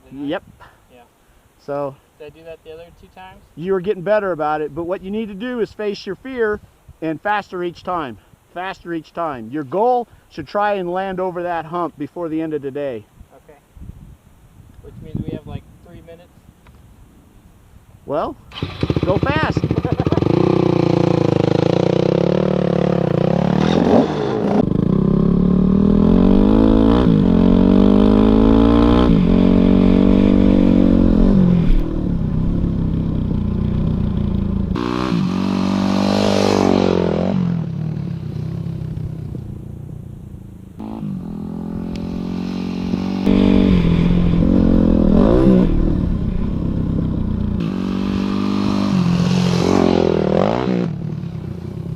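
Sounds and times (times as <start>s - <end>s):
dirt bike engine revving: 18.5s - 39.7s, 40.8s - 51.7s.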